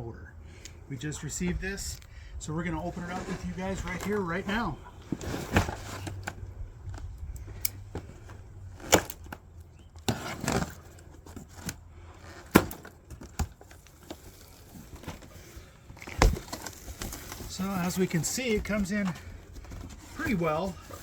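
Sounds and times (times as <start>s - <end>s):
cardboard box being opened: 2.8s - 6.5s, 10.0s - 21.0s.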